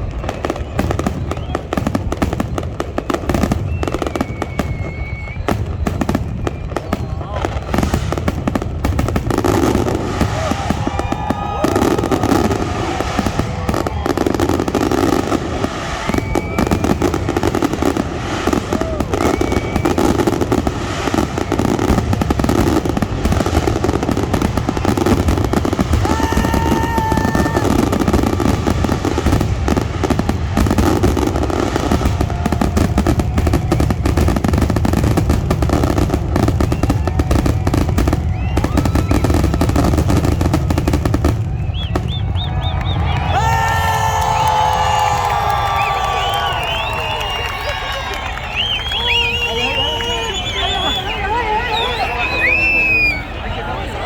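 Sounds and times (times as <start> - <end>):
crowd voices: 0.0 - 54.0
fireworks bangs and crackling: 0.0 - 54.0.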